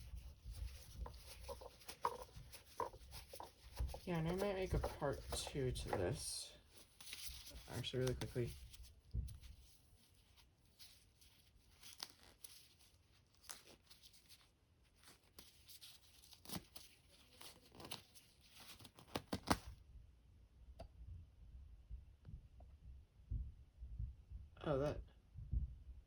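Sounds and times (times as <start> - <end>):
rustling of plastic parts: 0.0 - 19.7.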